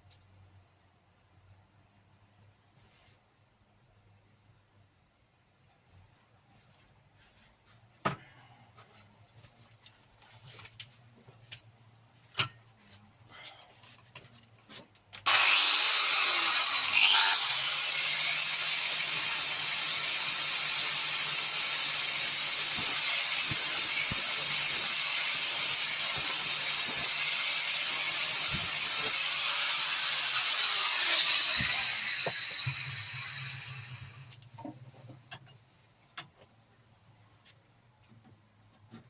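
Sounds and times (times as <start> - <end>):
angle grinder grinding metal: 15.2 - 34.4.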